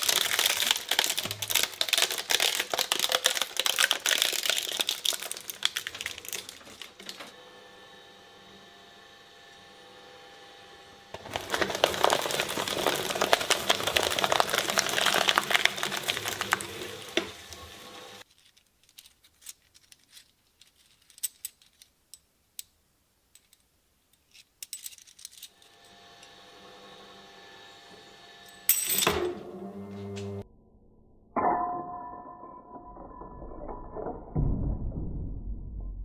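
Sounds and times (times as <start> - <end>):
shredder hum: 0.0 - 18.2, 25.5 - 30.4
shredder grinding with crackles: 0.0 - 18.3, 25.5 - 30.4.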